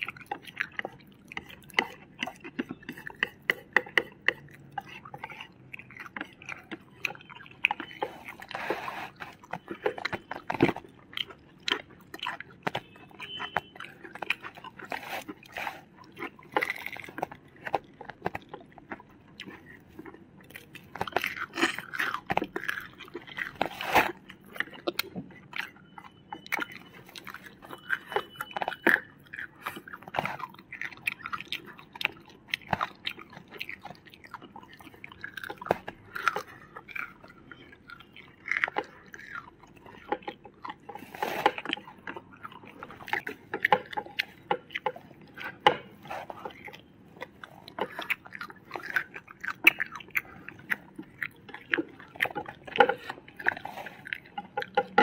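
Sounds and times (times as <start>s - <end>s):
crunching food: 0.0s - 55.0s
people chewing food: 0.0s - 55.0s
wet mouth sounds: 0.0s - 55.0s.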